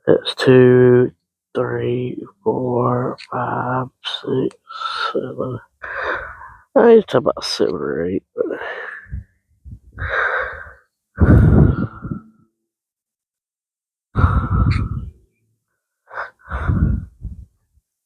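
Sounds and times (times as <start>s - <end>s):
man breathing out heavily: 5.8s - 6.7s, 8.6s - 12.3s, 14.2s - 15.1s, 16.1s - 17.5s.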